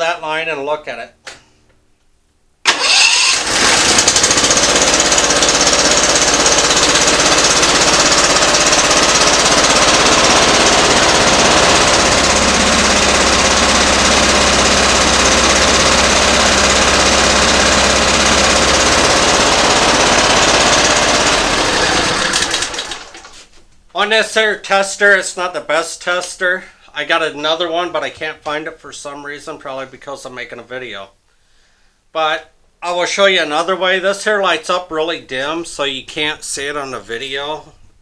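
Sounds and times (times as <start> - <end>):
mower engine running rough: 2.7 - 23.3.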